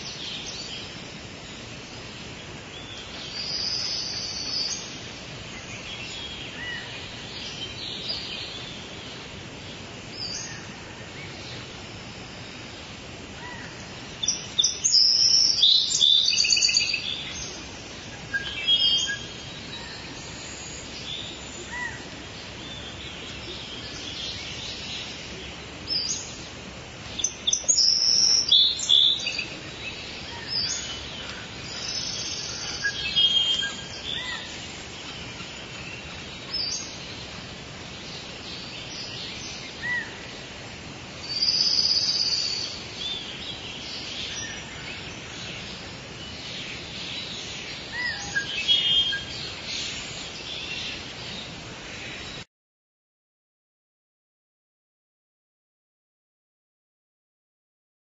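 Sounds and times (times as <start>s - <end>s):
birds chirping and singing: 0.0s - 9.4s, 10.1s - 12.6s, 13.4s - 40.6s, 41.2s - 52.4s
steady background hiss: 0.0s - 52.4s.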